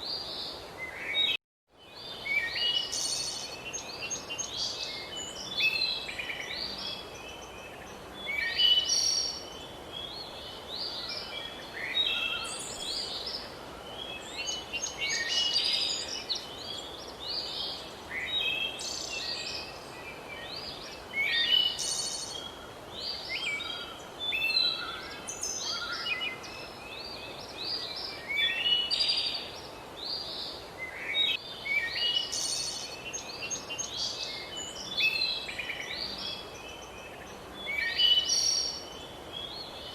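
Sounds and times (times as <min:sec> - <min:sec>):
chorus of birds singing: 0:00.0 - 0:39.9
faint background hiss: 0:00.0 - 0:39.9.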